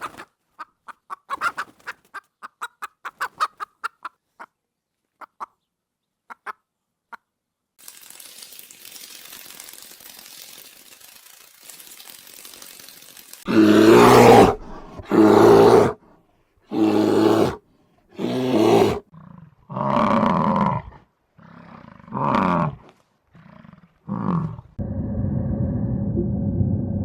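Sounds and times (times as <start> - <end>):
large animal roaring: 13.5 - 16.0, 16.7 - 17.6, 18.2 - 27.0.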